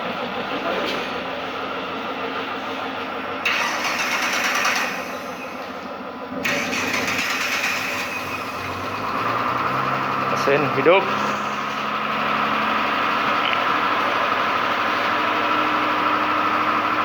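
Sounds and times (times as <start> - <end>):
car engine running: 0.0 - 17.0
starter motor cranking: 3.4 - 12.3.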